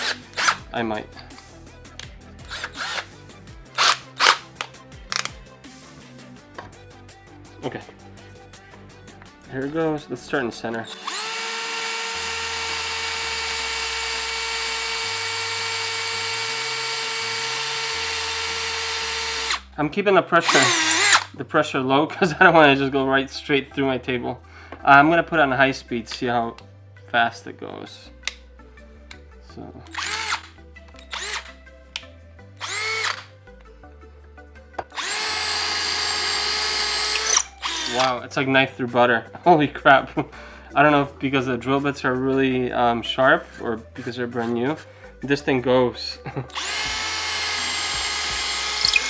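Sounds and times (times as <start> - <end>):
cordless drill drilling into wood: 0.0 - 0.6, 2.5 - 3.1, 3.8 - 4.7, 10.8 - 19.6, 20.4 - 21.3, 29.9 - 30.5, 31.1 - 31.6, 32.6 - 33.3, 35.0 - 38.1, 46.5 - 49.0.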